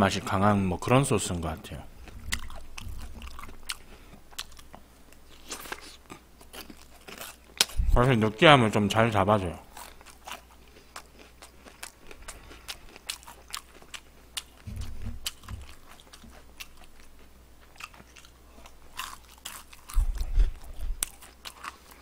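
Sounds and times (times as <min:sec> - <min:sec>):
chewing crispy fried chicken: 0:02.0 - 0:07.9, 0:09.6 - 0:22.0
low thumps: 0:14.7 - 0:15.8, 0:19.9 - 0:21.0.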